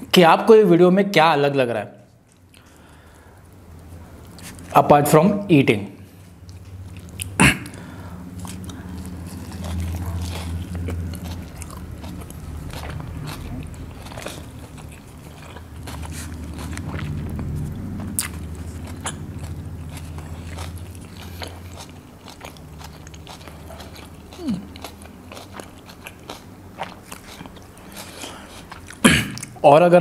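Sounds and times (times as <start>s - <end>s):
falling hum: 2.6s - 26.8s
low hum: 5.9s - 25.7s
chewing food: 6.1s - 29.6s.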